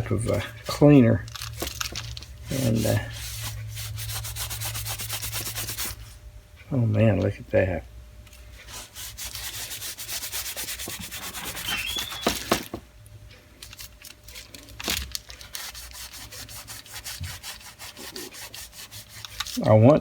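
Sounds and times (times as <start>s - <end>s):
wipe rubbing on drill body: 2.5s - 6.0s, 8.6s - 12.6s, 15.6s - 19.9s.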